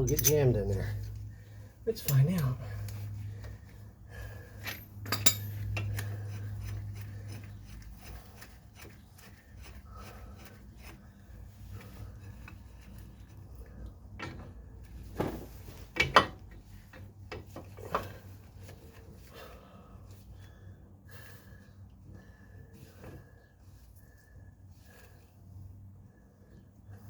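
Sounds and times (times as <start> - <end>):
steel tools clinking and scraping: 0.0 - 1.2, 1.9 - 3.0, 4.6 - 8.0
sharp metal clanks: 4.6 - 6.0.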